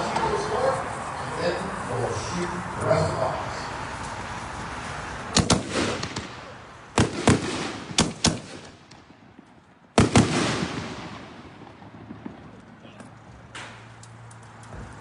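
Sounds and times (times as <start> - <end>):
firework booms: 5.3 - 13.9.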